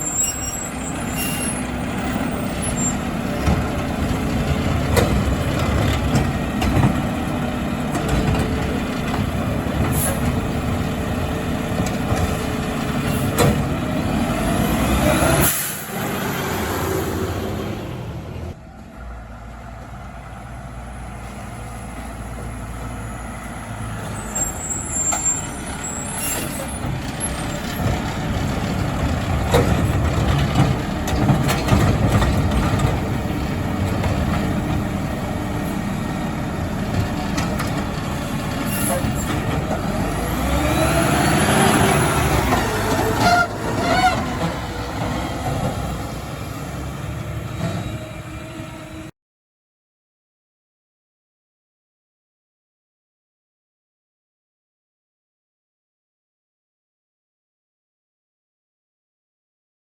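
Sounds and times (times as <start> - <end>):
truck diesel engine revving: 0.0 - 49.1
air brake hiss: 15.4 - 16.0.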